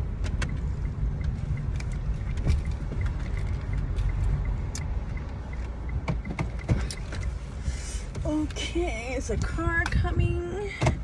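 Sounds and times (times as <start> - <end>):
car engine rumble from cabin: 0.0 - 11.0.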